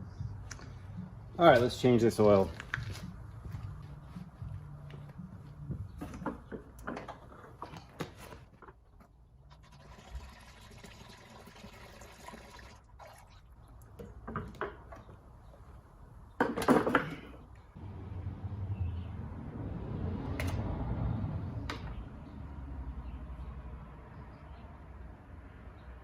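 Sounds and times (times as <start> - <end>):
oil pouring into a pan: 9.6 - 13.4.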